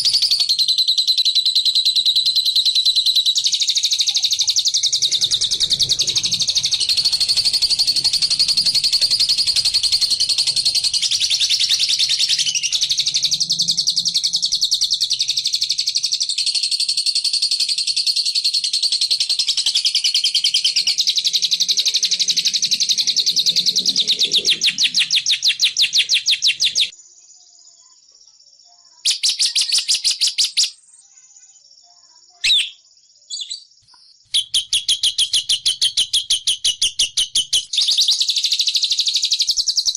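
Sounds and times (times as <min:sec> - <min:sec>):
lovebird chattering: 0:00.0 - 0:15.8, 0:29.1 - 0:30.8, 0:34.3 - 0:38.6
brief bird calls: 0:32.3 - 0:38.3.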